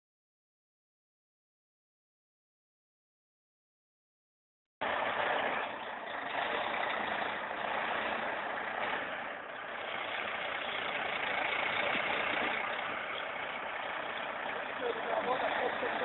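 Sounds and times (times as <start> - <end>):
tractor engine running: 4.8 - 16.0.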